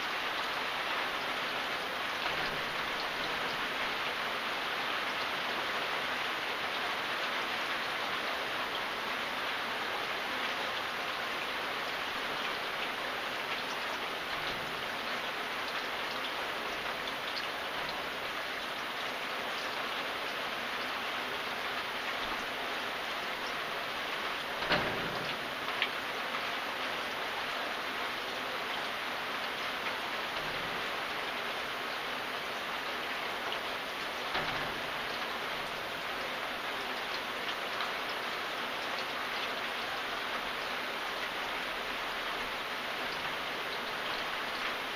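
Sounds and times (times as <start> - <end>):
steady rain hiss: 0.0 - 44.9
heavy drips knocking: 21.7 - 26.1, 29.8 - 39.1.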